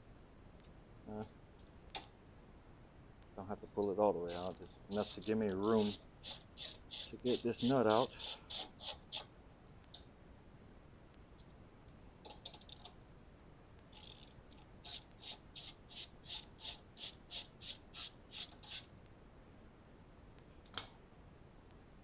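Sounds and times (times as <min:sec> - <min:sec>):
ratchet wrench clicking: 0:04.3 - 0:09.2, 0:13.9 - 0:18.9.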